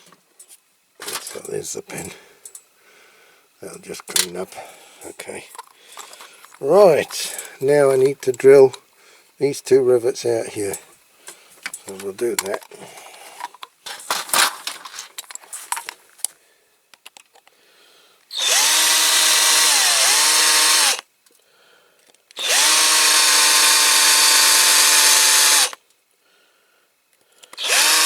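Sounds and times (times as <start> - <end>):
small electric drill whining: 18.3 - 21.1, 22.4 - 25.8, 27.4 - 28.0.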